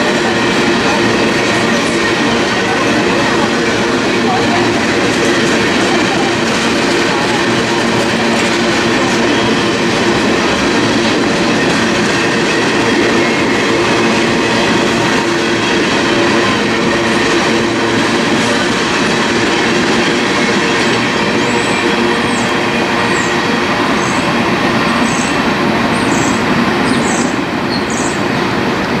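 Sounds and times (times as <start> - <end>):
freight train wheels rumbling: 0.0 - 29.0.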